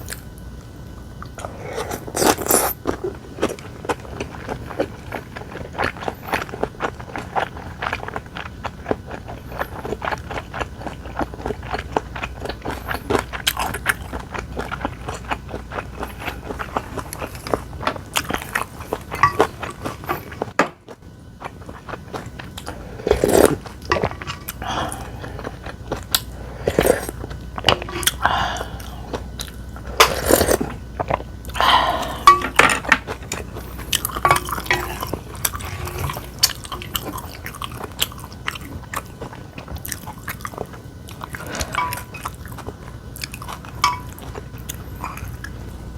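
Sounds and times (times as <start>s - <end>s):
person chewing food: 1.2s - 45.9s.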